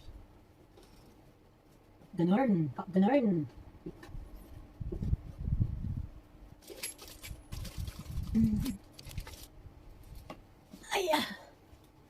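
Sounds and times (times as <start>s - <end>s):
small accessories clinking and rustling: 6.6s - 9.5s.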